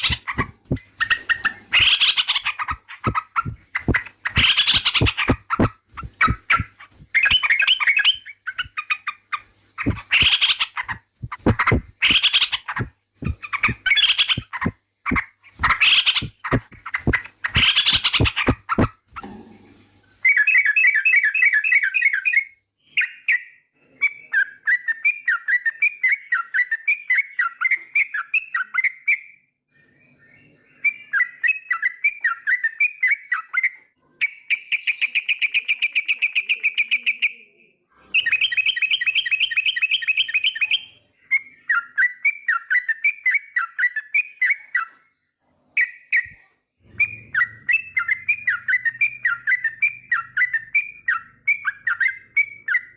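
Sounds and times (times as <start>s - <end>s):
bird chattering song: 0.0s - 19.4s, 30.1s - 45.1s, 45.8s - 52.9s.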